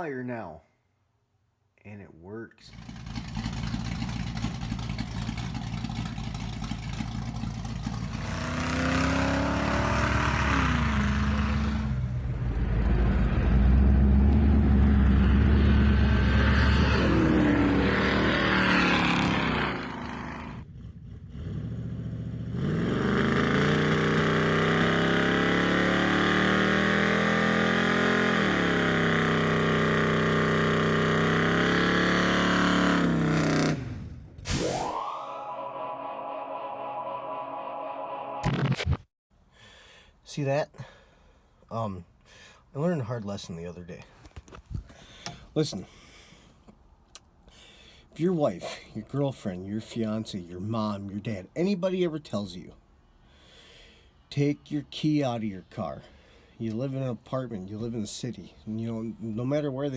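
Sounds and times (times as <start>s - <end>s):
truck engine revving: 2.7s - 34.4s.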